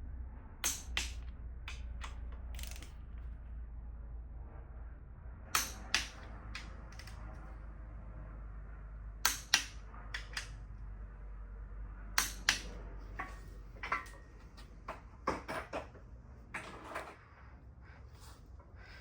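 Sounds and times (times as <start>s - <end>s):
low steady hum: 0.0s - 19.0s
metallic clicks and taps from tools: 0.6s - 3.2s, 5.6s - 7.2s, 9.2s - 10.6s, 12.2s - 14.7s.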